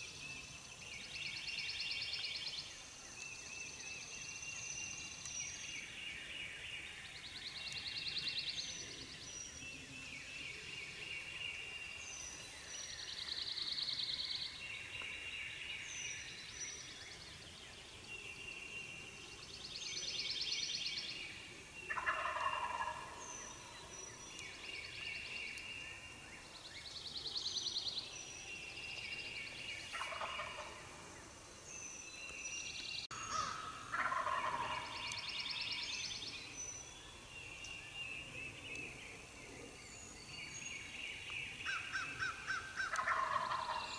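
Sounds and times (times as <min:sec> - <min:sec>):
songbirds singing: 0:00.0 - 0:43.9
turkeys gobbling: 0:21.9 - 0:23.2, 0:30.0 - 0:30.8, 0:33.4 - 0:34.9, 0:42.9 - 0:43.8.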